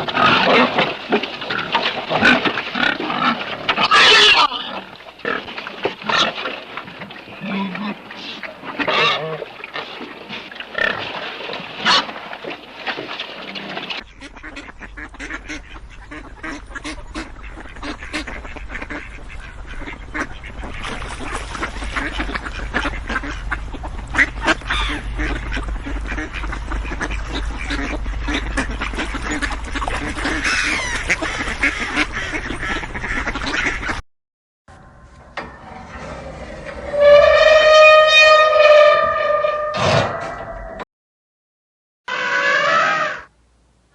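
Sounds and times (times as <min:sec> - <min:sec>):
many birds calling: 0:11.8 - 0:34.0
low rumble: 0:19.2 - 0:33.0, 0:34.7 - 0:40.8
animal calls: 0:20.4 - 0:32.1, 0:42.1 - 0:43.3.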